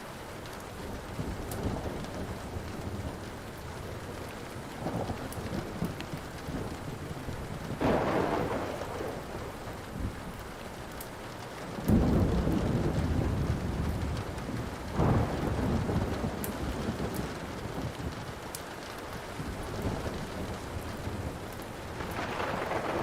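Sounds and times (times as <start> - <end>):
steady rain: 0.0 - 23.0
wood fire crackling: 0.0 - 23.0
rolls of thunder: 7.8 - 9.8, 22.0 - 23.0.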